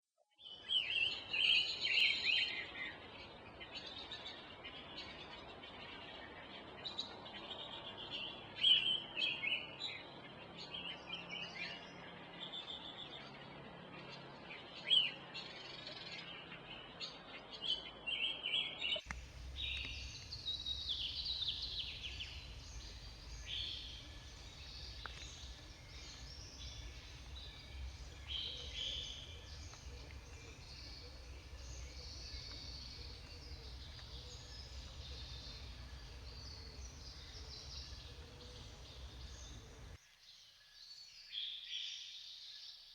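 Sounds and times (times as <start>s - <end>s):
bird singing whistled phrases: 19.1s - 40.0s
steady low rumble: 19.1s - 40.0s.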